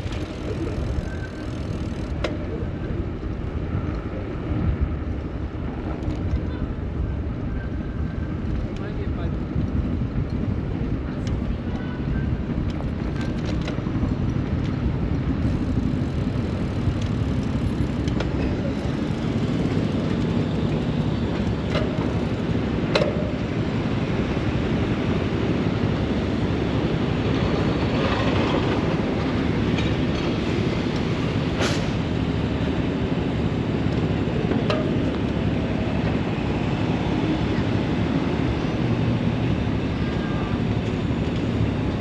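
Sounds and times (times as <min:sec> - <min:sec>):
bicycle clicks and knocks: 0:00.0 - 0:04.1, 0:05.7 - 0:06.5, 0:12.5 - 0:36.2
road and traffic rumble: 0:00.0 - 0:42.0.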